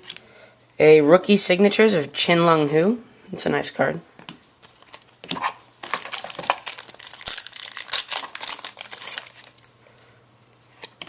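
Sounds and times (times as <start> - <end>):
foil wrapper crinkling: 4.6 - 9.8.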